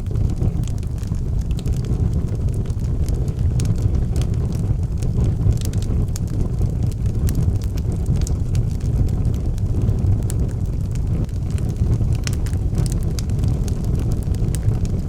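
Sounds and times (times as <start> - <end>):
burning logs crackling and popping: 0.0 - 15.0
low rumble of flames: 0.0 - 15.0.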